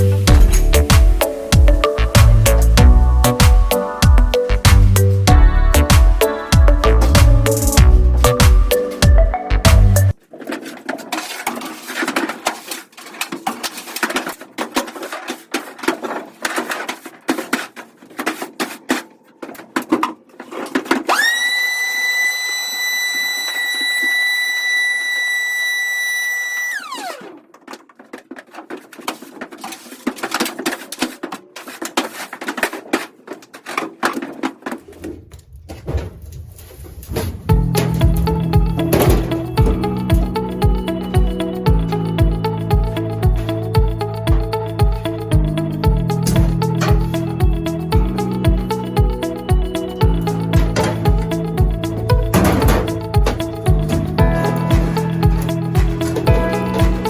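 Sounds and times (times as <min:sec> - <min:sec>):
background music: 0:00.0 - 0:10.2, 0:37.1 - 0:57.0
small power tool whirring: 0:21.1 - 0:27.4
clicks knocks and clatter: 0:37.0 - 0:57.0.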